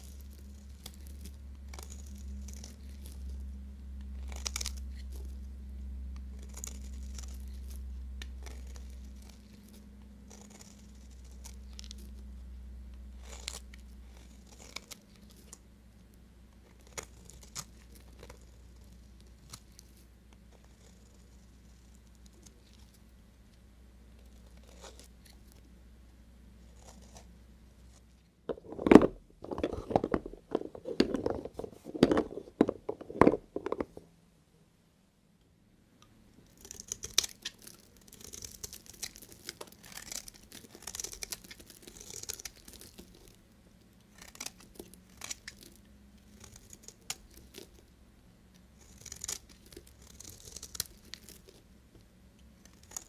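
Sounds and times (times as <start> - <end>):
knife crunching through soap: 0.0 - 3.4, 4.1 - 5.4, 6.3 - 12.2, 13.2 - 15.6, 16.6 - 23.0, 24.2 - 25.6, 26.6 - 28.0, 36.5 - 43.4, 44.0 - 47.9, 48.8 - 51.7, 52.6 - 53.0
soap slices crackling and scraping: 0.0 - 3.4, 4.1 - 5.4, 6.4 - 12.3, 13.2 - 15.6, 16.6 - 23.1, 24.2 - 25.6, 26.6 - 34.0, 36.4 - 47.9, 48.5 - 51.7, 52.4 - 53.0.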